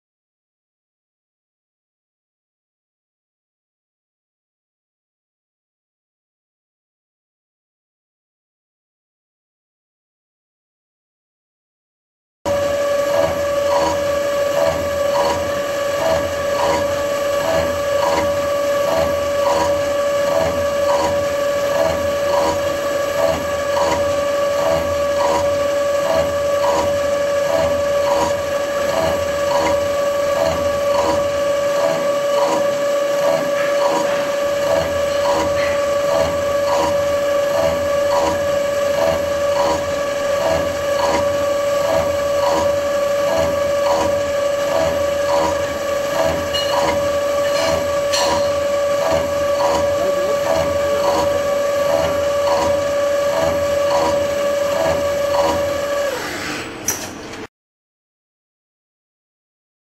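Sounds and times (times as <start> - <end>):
machine whining with regular pulse: 12.5 - 56.8.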